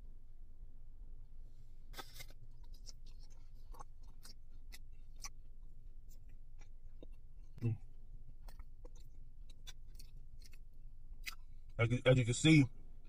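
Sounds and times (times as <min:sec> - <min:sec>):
low steady hum: 0:00.0 - 0:13.0
chewing: 0:01.9 - 0:11.8
crunchy bite: 0:01.9 - 0:11.8.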